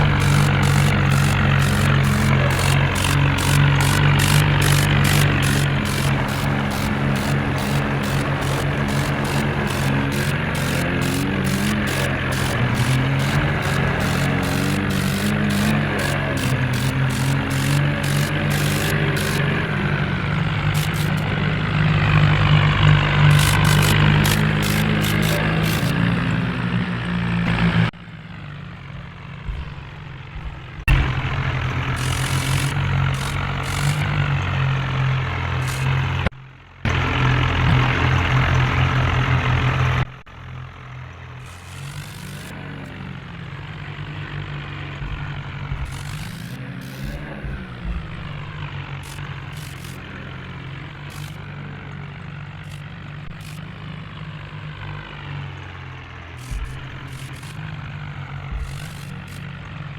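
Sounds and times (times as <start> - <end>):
tractor diesel engines running: 0.0 - 59.9.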